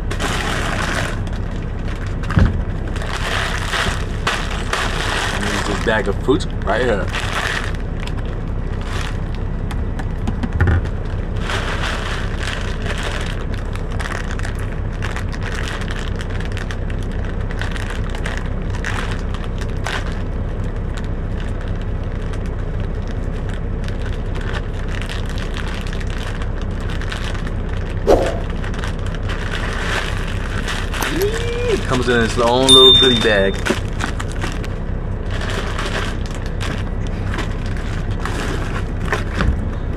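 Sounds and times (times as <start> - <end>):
plastic bag crinkling: 0.0 - 6.2, 10.8 - 20.3, 23.4 - 32.1
thump: 2.3 - 2.6
steady low hum: 26.0 - 39.9.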